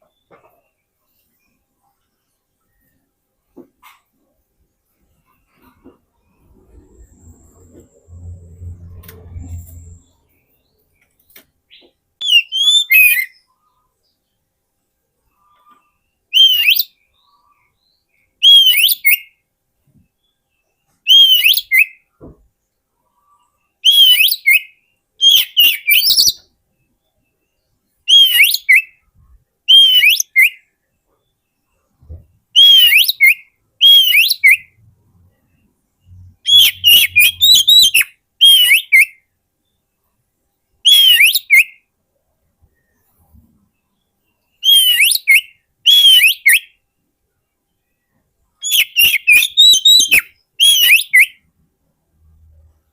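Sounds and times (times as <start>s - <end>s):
bird whistling calls: 12.2s - 13.4s, 23.8s - 26.4s, 29.7s - 30.6s, 32.6s - 34.8s, 36.4s - 39.1s, 40.9s - 41.8s, 44.6s - 46.7s, 48.6s - 51.4s.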